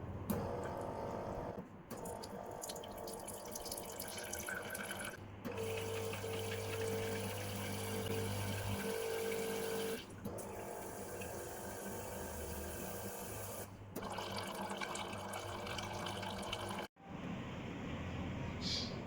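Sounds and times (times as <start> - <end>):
water running into container: 2.0 - 10.0, 14.0 - 16.9
espresso machine pump humming: 3.9 - 16.9.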